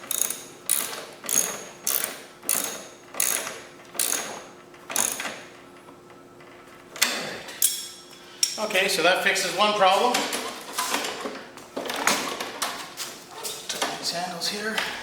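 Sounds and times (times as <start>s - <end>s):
ratchet wrench clicking: 0.0s - 4.4s, 5.0s - 5.3s.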